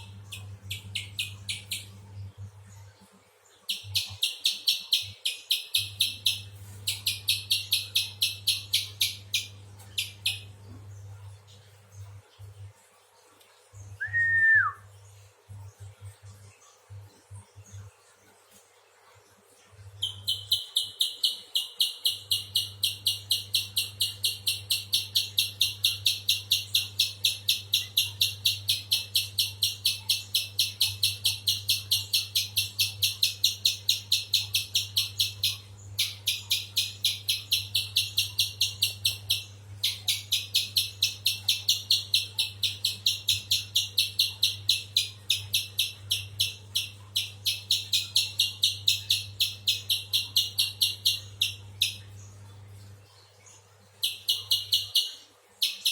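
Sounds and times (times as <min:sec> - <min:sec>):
faint low hum: 0:00.0 - 0:55.9.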